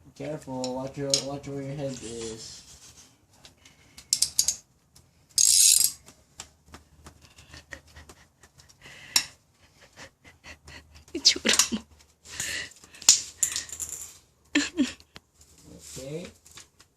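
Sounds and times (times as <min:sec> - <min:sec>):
hand tools clicking and rattling: 0:05.4 - 0:06.1.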